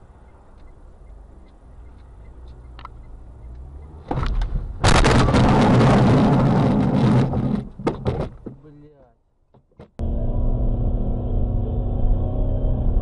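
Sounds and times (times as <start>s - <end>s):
engine and road hum: 0.0s - 13.0s
car crash impact: 4.0s - 8.4s.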